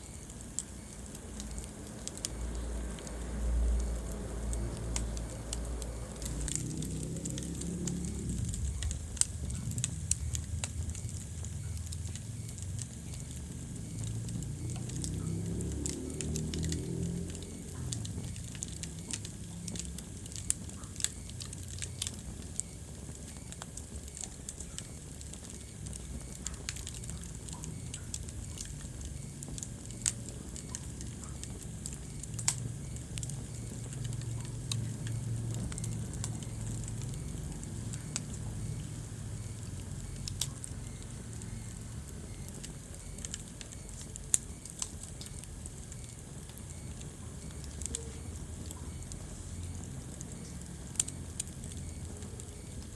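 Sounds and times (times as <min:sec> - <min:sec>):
low rumble of flames: 0:00.0 - 0:52.9
wood fire crackling and popping: 0:00.0 - 0:52.9.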